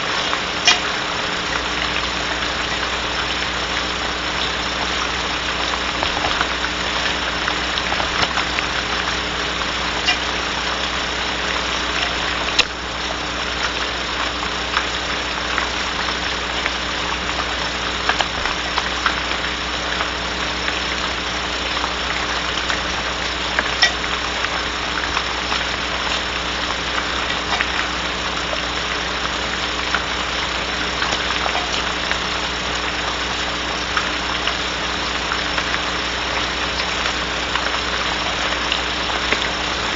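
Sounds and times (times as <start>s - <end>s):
faint electrical hum: 0.0s - 39.9s
rain falling on wooden box: 0.0s - 39.9s.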